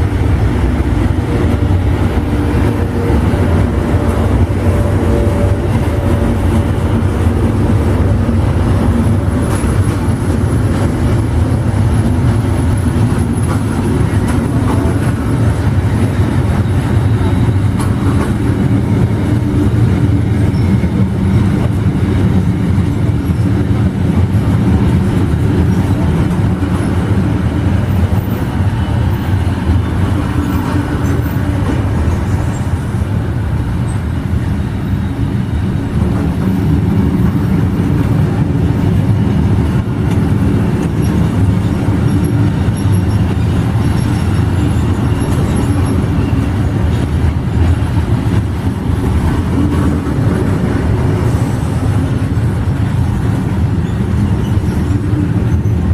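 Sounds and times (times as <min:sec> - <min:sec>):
train rumbling past: 0:00.0 - 0:55.9.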